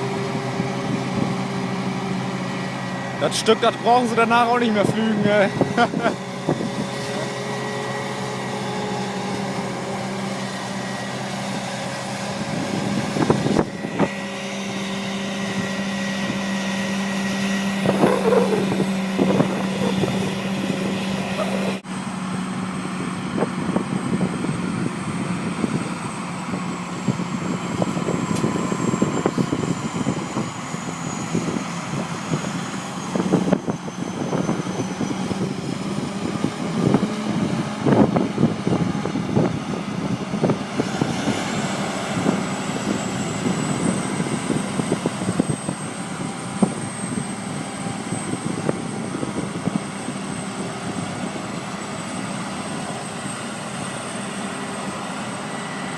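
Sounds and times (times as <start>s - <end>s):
tractor engine under load: 0.0s - 23.7s.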